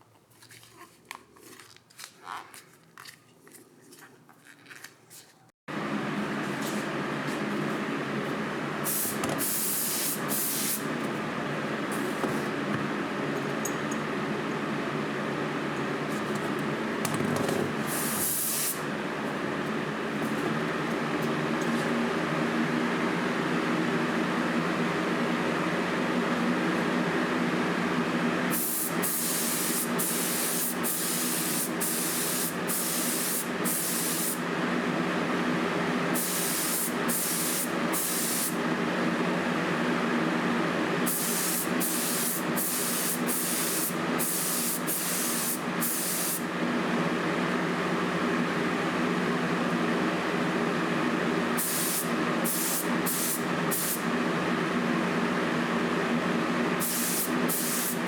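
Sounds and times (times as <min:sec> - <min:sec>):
spray gun hissing bursts: 0:08.8 - 0:10.9, 0:17.9 - 0:18.8, 0:28.5 - 0:34.4, 0:36.2 - 0:38.6, 0:41.1 - 0:46.4, 0:51.6 - 0:54.0, 0:56.8 - 0:58.0.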